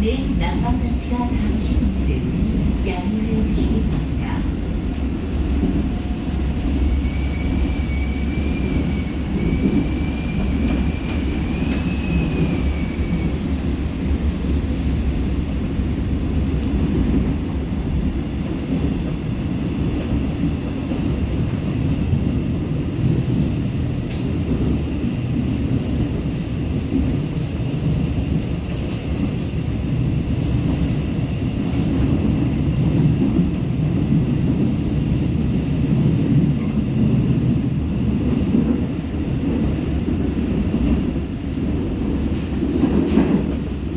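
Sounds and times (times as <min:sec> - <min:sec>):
train wheels rumbling on rails: 0:00.0 - 0:43.9.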